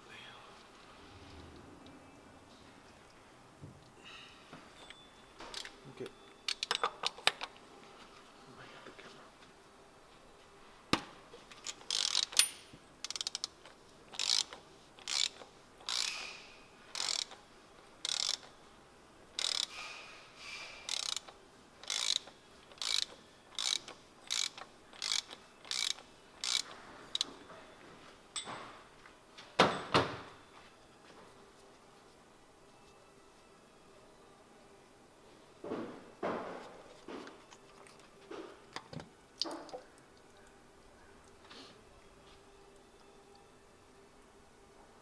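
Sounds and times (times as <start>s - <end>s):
hand ratchet clicking: 6.5s - 7.4s, 11.6s - 17.4s, 18.0s - 18.5s, 19.4s - 19.8s, 20.8s - 27.3s.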